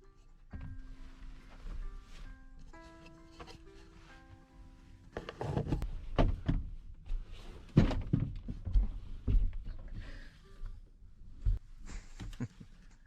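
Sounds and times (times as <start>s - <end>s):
knocks and thumps: 7.8s - 9.7s.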